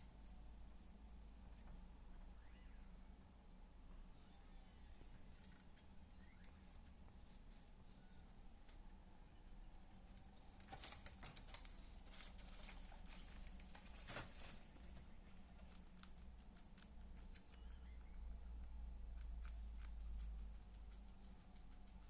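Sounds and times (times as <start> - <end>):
guinea pig crunching vegetables: 5.2 - 6.9, 10.1 - 22.0.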